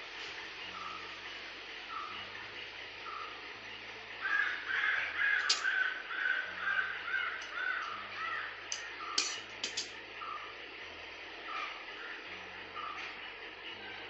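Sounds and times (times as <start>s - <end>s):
sharp clicks: 8.7s - 9.9s.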